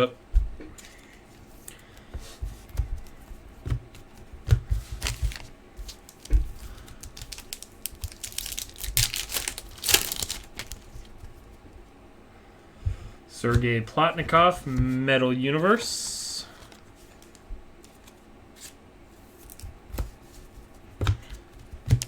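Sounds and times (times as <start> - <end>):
wrappers crinkling and tearing: 5.0 - 11.1.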